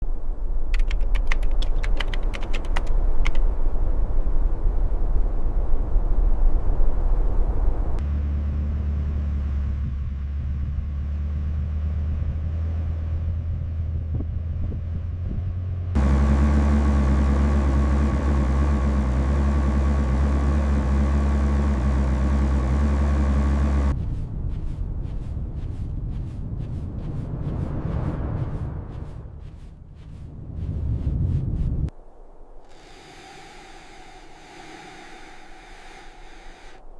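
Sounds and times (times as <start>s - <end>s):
gusty noisy rush: 0.0s - 8.0s, 23.9s - 36.9s
low engine-like drone: 4.0s - 36.9s.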